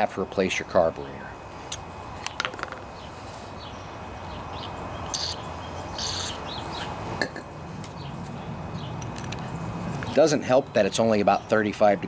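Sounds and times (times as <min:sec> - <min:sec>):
small birds chirping: 0:02.2 - 0:07.0, 0:07.8 - 0:09.2
short hissing bursts: 0:05.1 - 0:05.4, 0:06.0 - 0:06.5.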